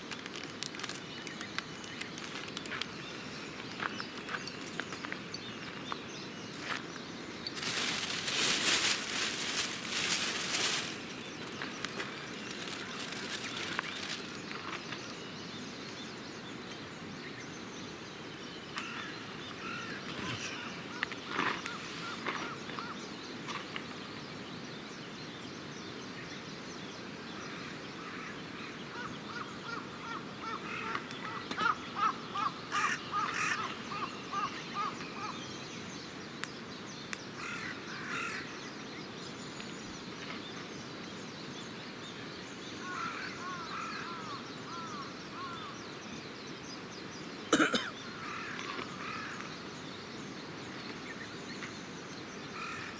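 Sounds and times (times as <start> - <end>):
campfire crackles: 0.0 - 17.0
birds calling: 0.3 - 24.3, 27.4 - 52.9.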